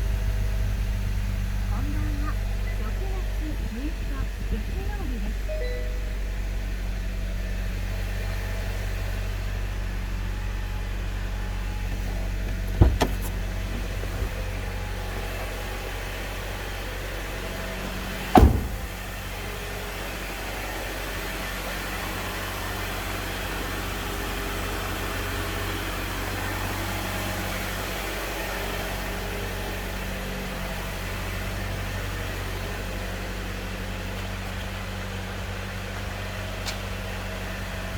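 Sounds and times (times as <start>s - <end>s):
car engine idling: 0.0s - 37.9s
sharp knocks: 18.3s - 19.1s.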